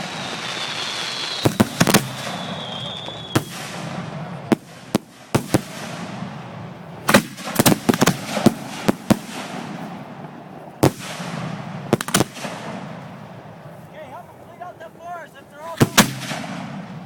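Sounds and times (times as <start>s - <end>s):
fireworks hiss and crackle: 0.0s - 17.0s
firework shells banging: 1.4s - 6.4s.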